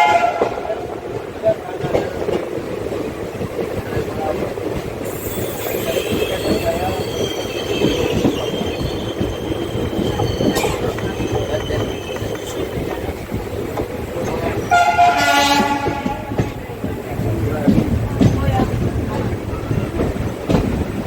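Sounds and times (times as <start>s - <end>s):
locomotive horn: 0.0s - 0.9s, 14.7s - 16.4s
train rumbling along track: 0.0s - 21.0s.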